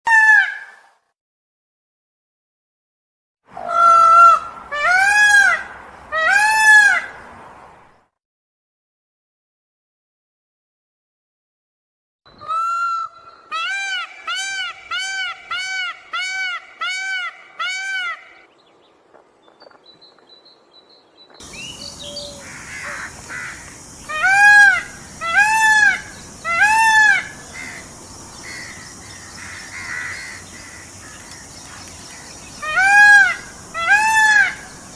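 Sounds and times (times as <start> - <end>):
peacock calling: 3.6 - 7.2, 12.3 - 18.5, 21.4 - 34.9
steady high hiss: 21.4 - 34.9.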